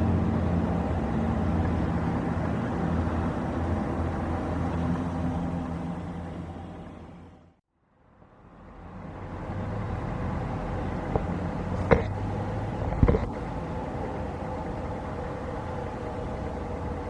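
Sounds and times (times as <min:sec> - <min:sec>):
jet engines humming and whining: 0:10.0 - 0:17.0.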